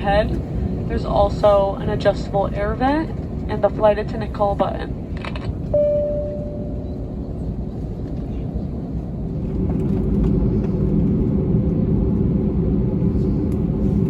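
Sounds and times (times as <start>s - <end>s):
aircraft cabin engine rumble: 0.0s - 14.0s.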